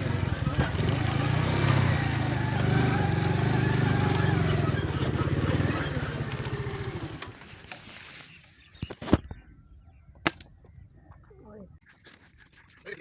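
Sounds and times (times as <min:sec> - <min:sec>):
small engine running: 0:00.0 - 0:07.8.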